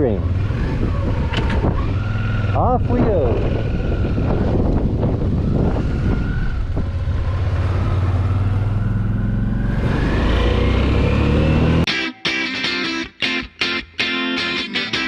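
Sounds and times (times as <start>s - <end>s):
motorcycle engine accelerating: 0.0s - 11.9s.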